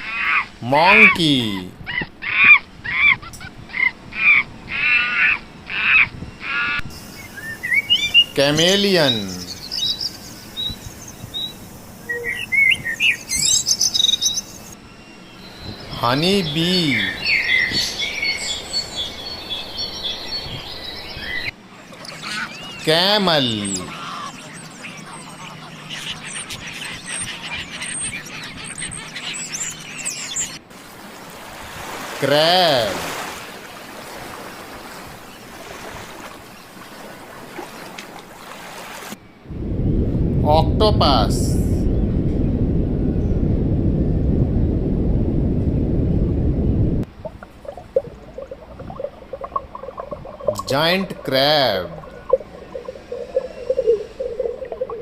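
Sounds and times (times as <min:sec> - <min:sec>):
small birds chirping: 0:00.0 - 0:30.6, 0:47.1 - 0:55.0
waves washing on a shore: 0:30.7 - 0:39.2, 0:47.1 - 0:55.0.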